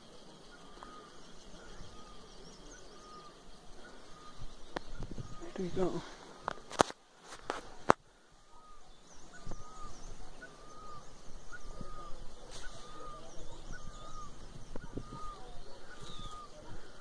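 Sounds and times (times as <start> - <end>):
high bird chirps: 8.4 - 17.0.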